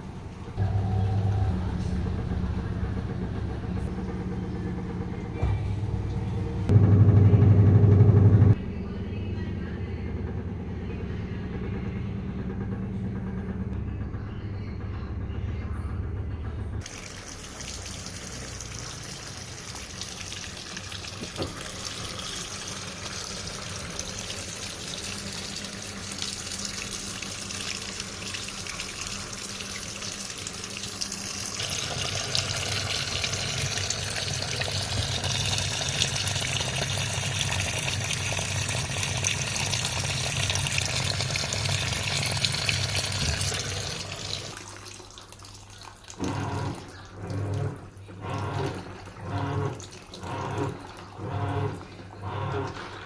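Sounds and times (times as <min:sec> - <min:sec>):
water rushing into washing machine: 0:00.0 - 0:06.8, 0:16.8 - 0:53.0
low hum: 0:00.0 - 0:16.9.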